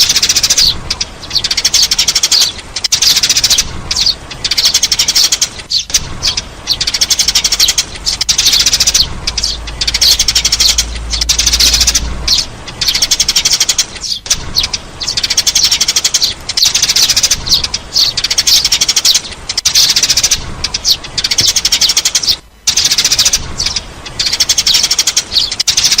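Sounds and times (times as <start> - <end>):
sparrows chirping: 0.0 - 26.0
low hum: 5.9 - 18.3.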